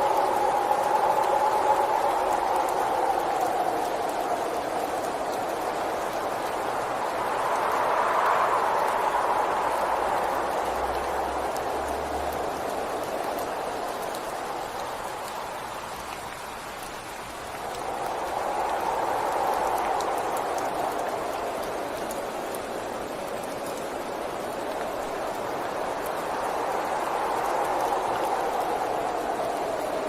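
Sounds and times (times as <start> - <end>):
raindrop ticks: 0.0 - 30.0
steady rain: 0.0 - 30.0.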